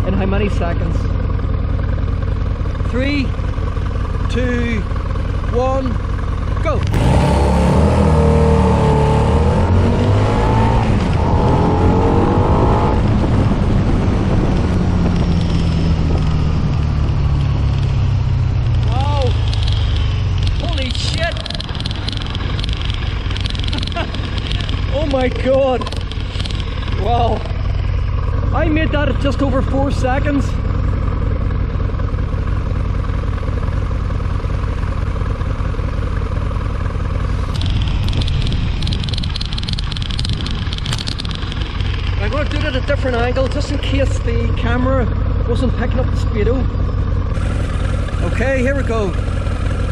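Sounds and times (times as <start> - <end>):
motorcycle engine accelerating: 0.0 - 49.9
wind noise: 9.4 - 27.6, 37.4 - 44.2.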